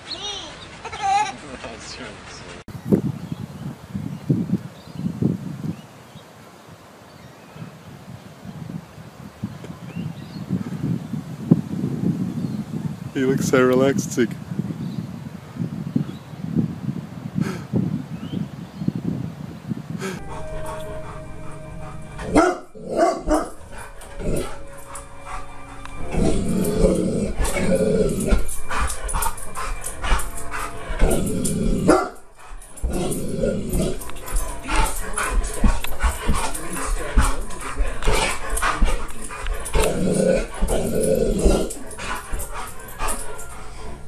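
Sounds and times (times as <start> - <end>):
large dog barking: 20.2 - 44.0.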